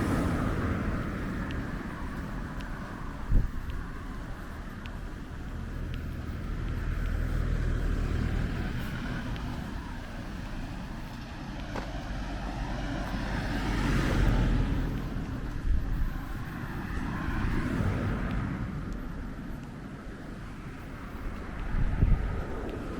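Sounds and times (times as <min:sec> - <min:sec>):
passing cars rumble: 0:00.0 - 0:22.9.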